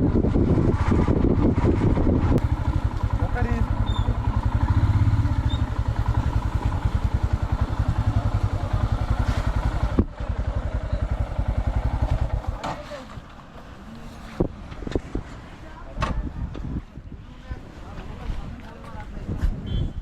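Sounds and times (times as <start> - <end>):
single-cylinder engine thumping: 0.7 - 13.6.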